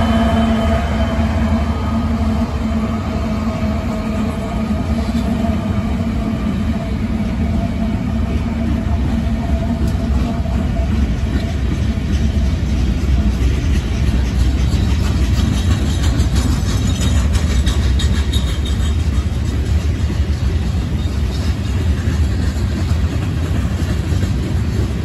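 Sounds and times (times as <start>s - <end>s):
locomotive engine rumble: 0.0s - 25.0s
freight car wheels clicking on rails: 9.1s - 25.0s.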